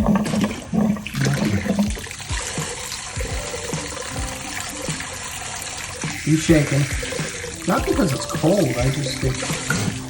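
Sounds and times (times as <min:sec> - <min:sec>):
tap water splashing: 0:00.0 - 0:10.0.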